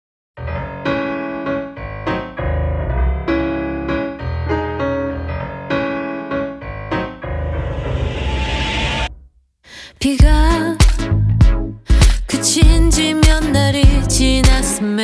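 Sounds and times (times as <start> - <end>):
keyboard chords: 0.4 - 7.8
rising noise swell: 7.2 - 9.3
deep bass: 10.2 - 14.6.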